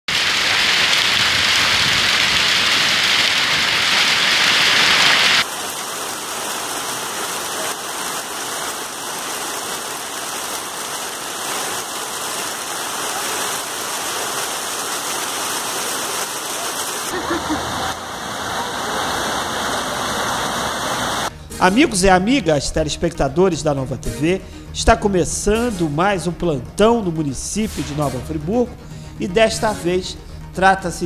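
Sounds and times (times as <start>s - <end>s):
heavy rain on a tiled roof: 0.1s - 21.3s.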